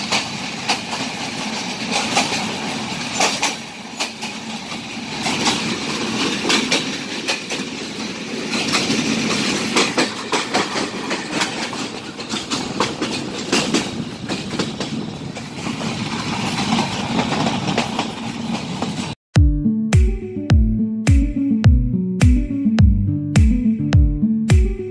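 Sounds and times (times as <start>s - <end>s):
train coaches rumbling: 0.0s - 19.2s
wheels clacking over rail joints: 0.0s - 19.2s.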